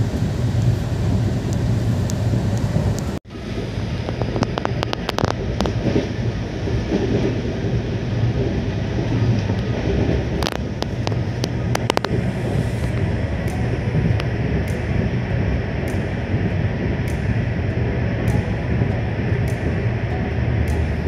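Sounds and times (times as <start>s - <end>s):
train rumbling on track: 0.0s - 21.0s
sharp clicks and knocks: 10.0s - 12.2s.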